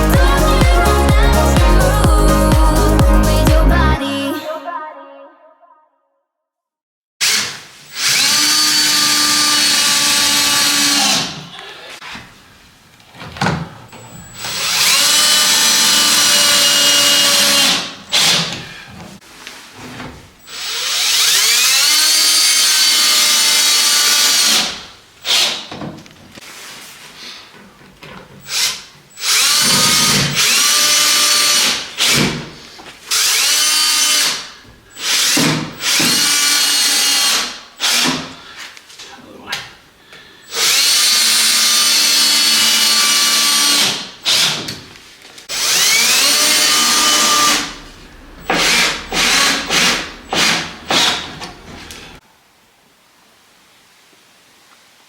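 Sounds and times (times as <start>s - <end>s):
power drill spinning: 7.2s - 11.4s, 14.0s - 18.6s, 20.4s - 25.7s, 28.4s - 38.4s, 40.5s - 44.7s, 45.5s - 52.2s.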